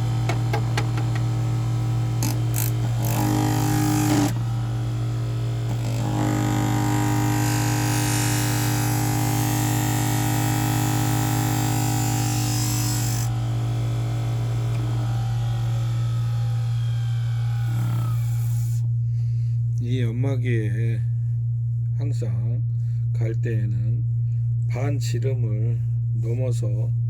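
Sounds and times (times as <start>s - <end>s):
grinder motor humming: 0.0s - 18.9s.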